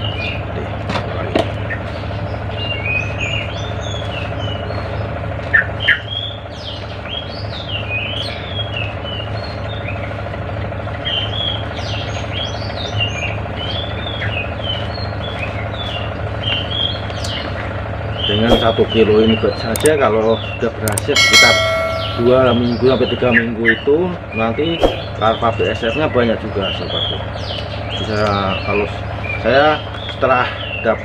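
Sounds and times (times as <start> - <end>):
small birds chirping: 0.0 - 31.0
steady low hum: 20.9 - 23.2.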